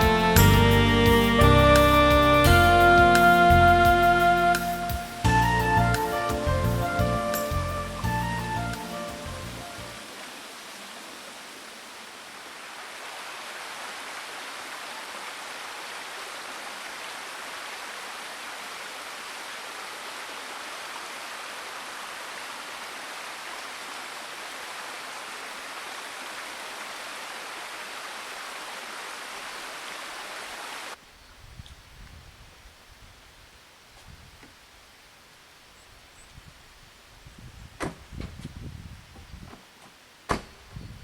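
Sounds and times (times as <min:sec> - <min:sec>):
creek water babbling: 0:00.2 - 0:31.0.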